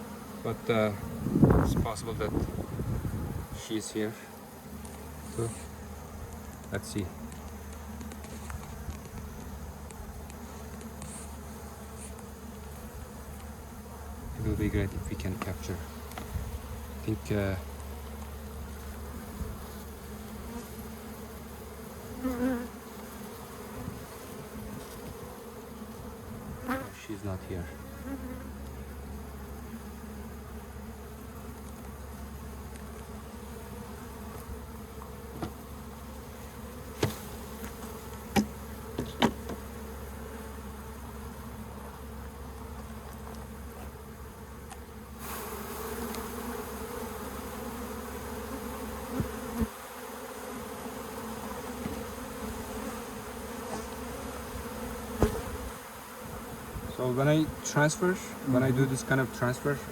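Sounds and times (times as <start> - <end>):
honeybees buzzing: 0.0 - 59.9
sharp knocks: 55.2 - 55.5.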